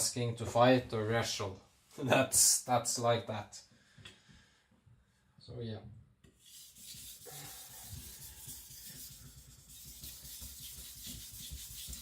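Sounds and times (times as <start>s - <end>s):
knife scraping on whetstone: 6.4s - 12.0s.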